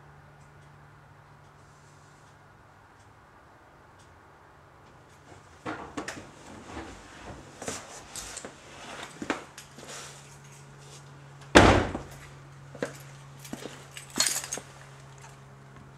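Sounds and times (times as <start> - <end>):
fuel pumps humming: 0.0 - 15.9
car door shutting: 11.6 - 12.2.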